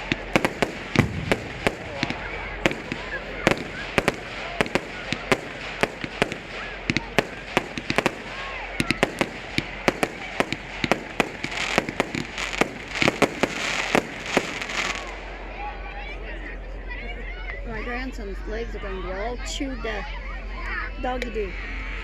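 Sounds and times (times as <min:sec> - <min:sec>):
fireworks bangs and cracks: 0:00.0 - 0:15.4
fireworks crackle: 0:00.0 - 0:15.4.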